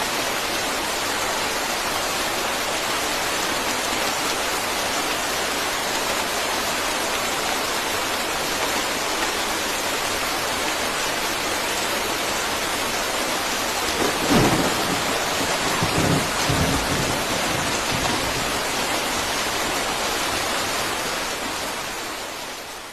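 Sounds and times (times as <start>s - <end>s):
heavy rain hissing: 0.0s - 22.9s
thunder rolling: 13.9s - 19.1s.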